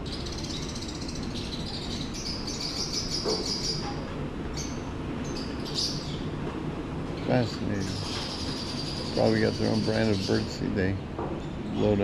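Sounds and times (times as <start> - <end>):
caged birds twittering: 0.0 - 12.0
low background hum: 0.0 - 12.0.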